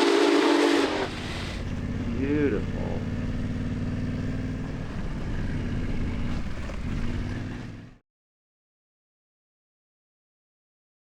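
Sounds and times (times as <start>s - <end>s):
vehicle engine running: 0.4s - 8.0s.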